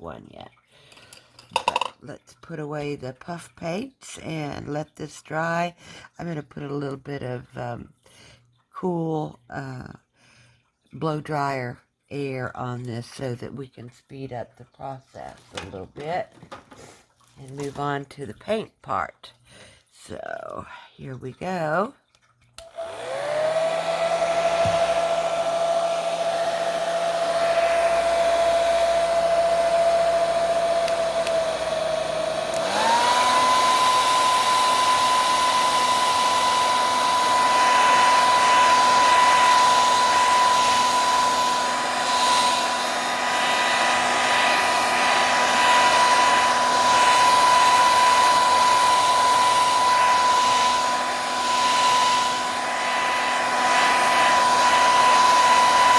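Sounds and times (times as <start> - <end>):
blow dryer motor whine: 22.6 - 55.9.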